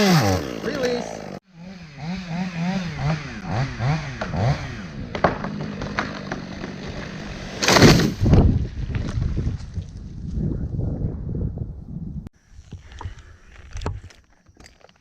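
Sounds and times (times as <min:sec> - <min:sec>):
chainsaw running: 0:00.0 - 0:08.1.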